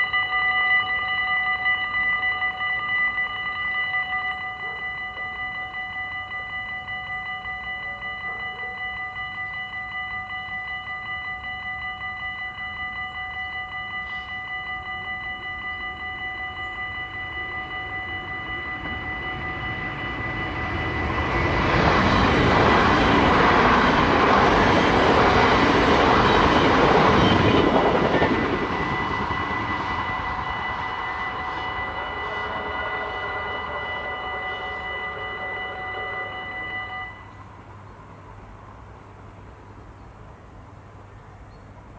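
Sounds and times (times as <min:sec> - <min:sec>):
level crossing bell ringing: 0:00.0 - 0:37.4
train rumble: 0:00.0 - 0:41.9.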